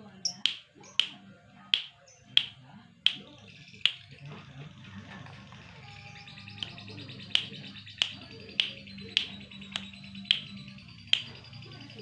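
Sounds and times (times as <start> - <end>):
songbird calling: 0.0 - 1.2, 5.9 - 12.0
soft bird chatter: 0.0 - 12.0
sharp loud bird notes: 0.2 - 1.2.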